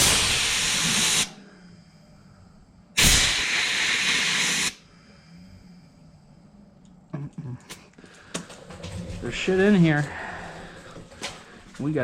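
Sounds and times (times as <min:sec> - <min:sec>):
compressed air hissing: 0:00.0 - 0:01.5, 0:02.9 - 0:05.0.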